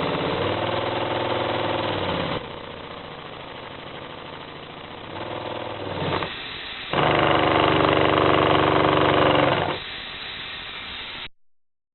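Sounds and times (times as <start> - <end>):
model steam engine running: 0.0 - 10.2
steady air hiss: 6.2 - 7.0, 9.7 - 11.3.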